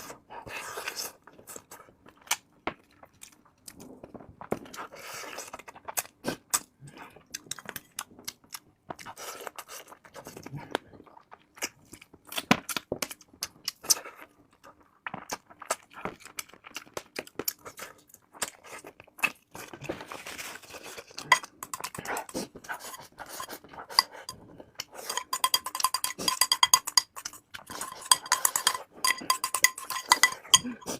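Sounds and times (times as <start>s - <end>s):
crunching while eating: 2.1s - 24.0s
utensils clinking against dish: 21.3s - 22.3s, 25.0s - 30.9s.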